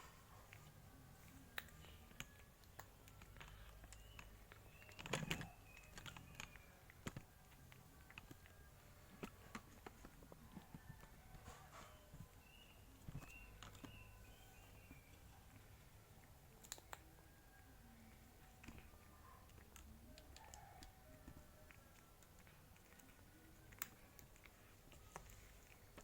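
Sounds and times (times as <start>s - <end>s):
cat crunching bone: 21.6s - 26.0s.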